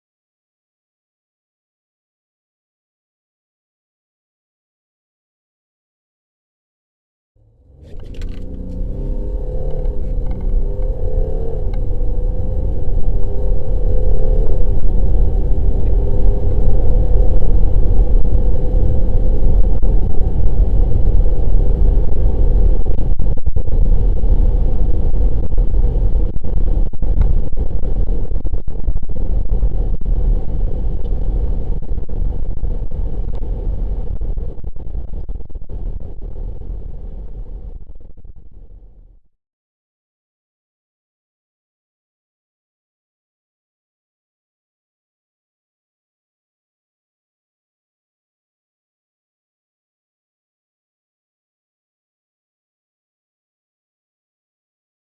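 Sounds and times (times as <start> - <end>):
diesel car accelerating: 7.4 - 39.0.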